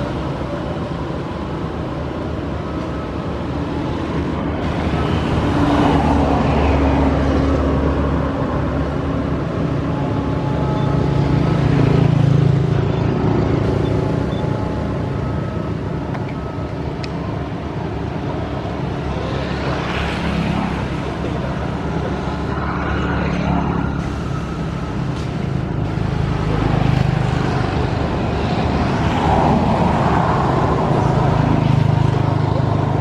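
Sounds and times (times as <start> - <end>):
engine droning: 0.0 - 33.0.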